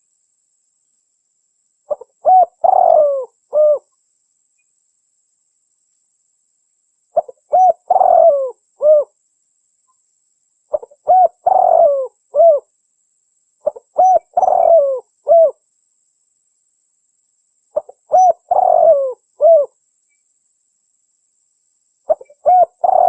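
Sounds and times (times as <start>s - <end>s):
dove cooing: 1.9s - 3.9s, 7.2s - 9.1s, 10.7s - 12.7s, 13.6s - 15.6s, 17.8s - 19.8s, 22.1s - 23.0s.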